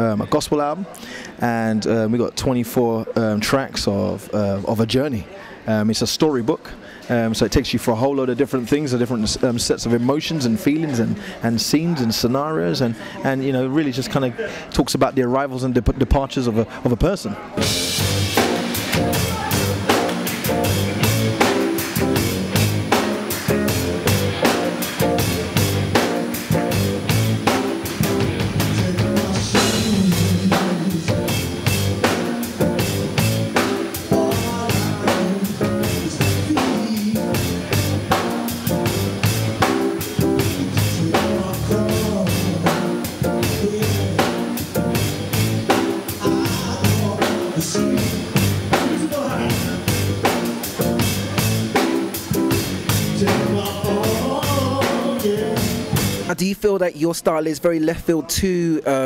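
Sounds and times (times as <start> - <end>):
band playing music: 17.6 - 56.4
drum rimshots: 17.6 - 56.4
person singing: 28.0 - 32.6, 33.6 - 38.0, 40.2 - 44.8, 46.0 - 50.1, 52.4 - 56.0.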